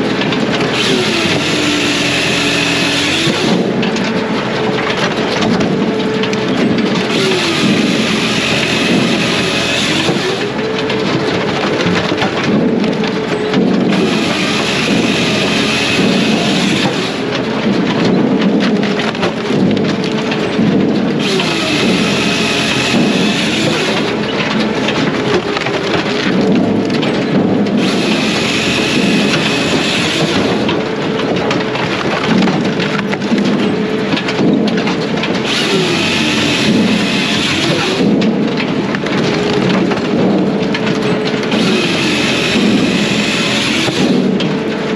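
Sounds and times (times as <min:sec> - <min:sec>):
diesel firewood processor running: 0:00.0 - 0:44.9.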